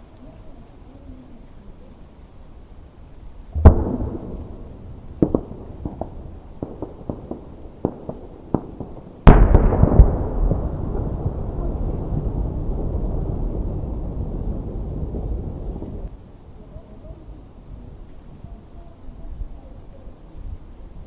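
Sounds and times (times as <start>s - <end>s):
fireworks booming: 3.5s - 16.1s
fireworks popping: 3.5s - 16.1s.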